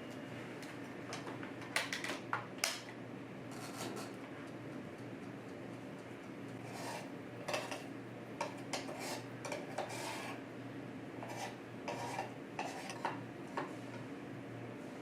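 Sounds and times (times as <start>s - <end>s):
utensils scraping dishes: 6.6s - 10.4s, 11.2s - 13.2s.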